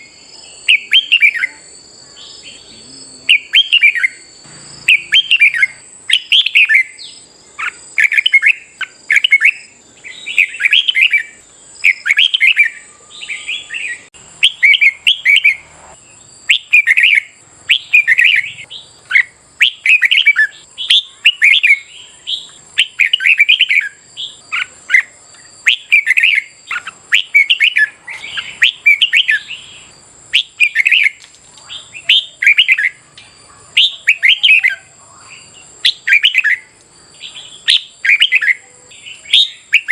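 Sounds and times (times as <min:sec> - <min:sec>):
bird warbling song: 0:00.0 - 0:39.9.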